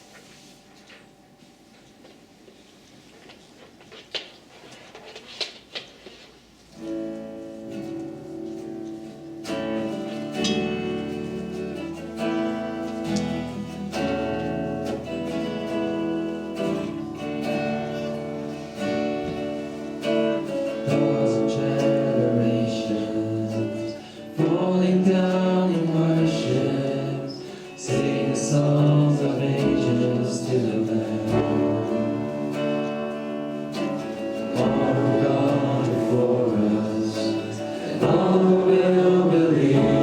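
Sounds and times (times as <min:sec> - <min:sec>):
strummed guitar band music: 0:06.8 - 0:40.0
person singing: 0:20.0 - 0:33.1, 0:34.0 - 0:40.0.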